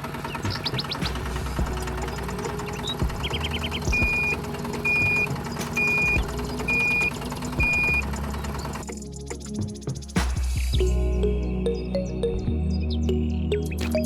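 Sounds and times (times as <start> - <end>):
low engine drone: 0.0 - 13.8
reversing alarm beeping: 1.7 - 8.8.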